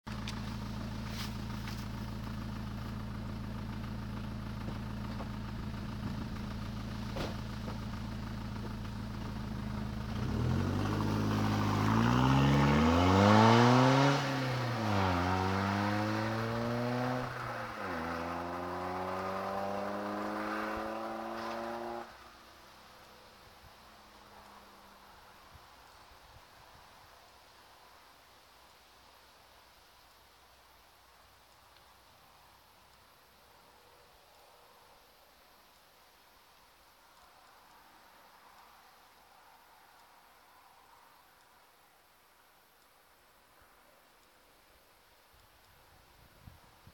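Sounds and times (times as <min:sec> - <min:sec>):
diesel car engine accelerating: 0:00.1 - 0:22.5
faint background hiss: 0:00.1 - 0:46.9.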